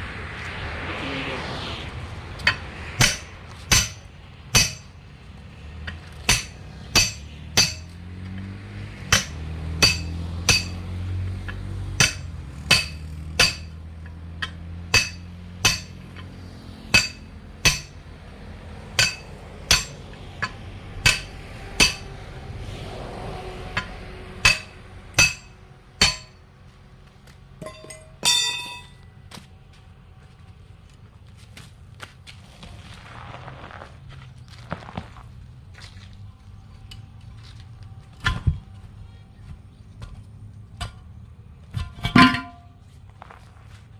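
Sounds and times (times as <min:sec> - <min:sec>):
hammer blows on metal: 0:09.1 - 0:10.8.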